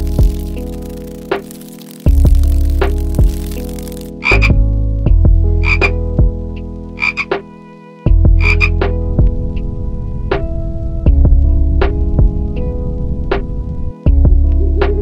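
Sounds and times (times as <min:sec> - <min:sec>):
tree frog croaking: 0:00.0 - 0:04.6, 0:05.6 - 0:06.0, 0:07.0 - 0:07.3, 0:08.4 - 0:08.8
background music with bass: 0:00.0 - 0:15.0.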